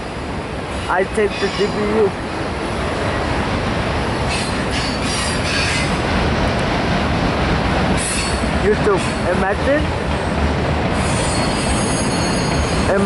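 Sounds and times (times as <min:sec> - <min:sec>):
steel wheels rumbling on rails: 0:00.0 - 0:13.0
wheels screeching: 0:04.2 - 0:06.1, 0:07.9 - 0:09.3, 0:10.2 - 0:13.0.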